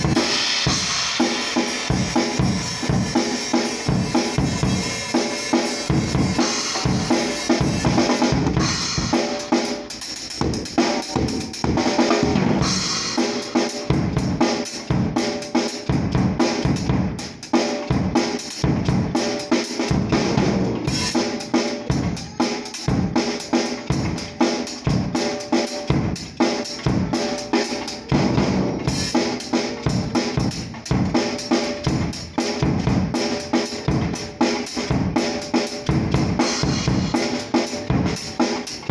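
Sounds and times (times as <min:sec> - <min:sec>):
ringing cymbals: 0:00.0 - 0:10.4.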